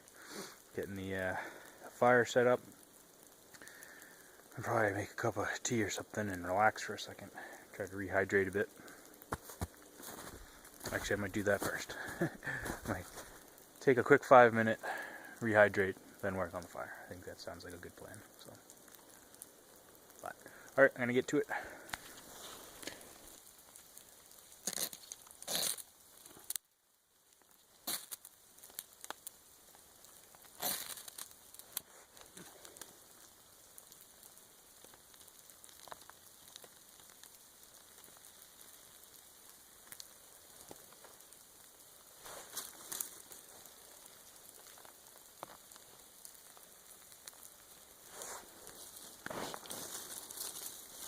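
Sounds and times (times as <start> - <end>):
freezing rain falling: 0.0 - 51.0
gear crinkling and rustling: 9.2 - 14.2, 24.5 - 26.6, 30.4 - 32.9, 42.2 - 43.8, 48.0 - 51.0.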